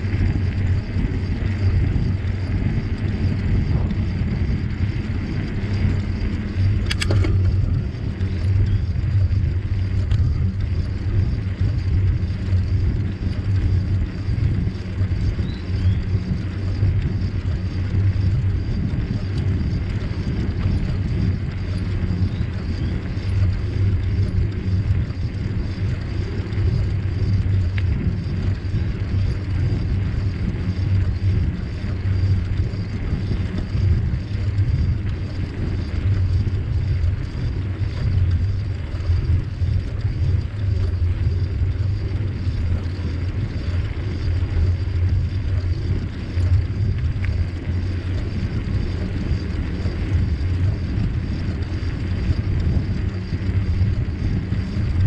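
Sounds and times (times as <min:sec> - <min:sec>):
bicycle tyres rolling: 0:00.0 - 0:55.0
wind on microphone: 0:00.0 - 0:55.0
sharp click: 0:06.8 - 0:07.5.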